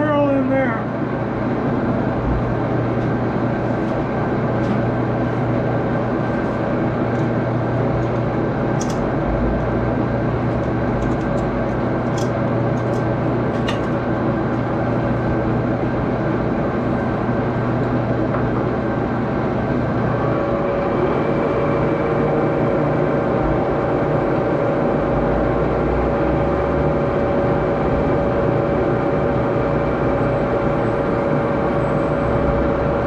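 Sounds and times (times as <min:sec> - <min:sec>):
lathe running: 0:02.6 - 0:31.8.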